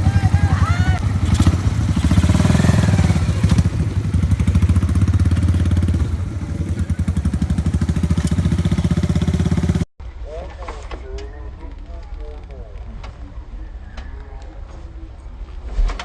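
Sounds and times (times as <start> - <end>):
small motorcycle engine running: 0.0 - 9.9.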